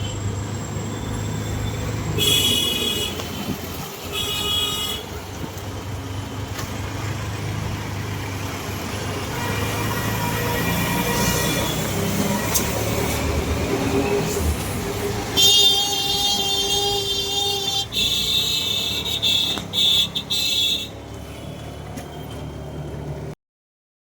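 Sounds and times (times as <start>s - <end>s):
road traffic noise: 0.0s - 23.4s
vehicle horn honking: 2.2s - 3.5s, 4.1s - 5.2s, 9.3s - 13.0s, 15.4s - 21.0s.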